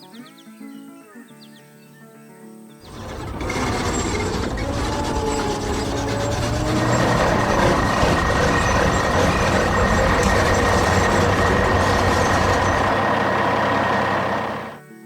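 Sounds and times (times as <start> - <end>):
heavy truck engine running: 2.8 - 14.8
road traffic noise: 2.8 - 14.8
steady whine: 2.9 - 14.8.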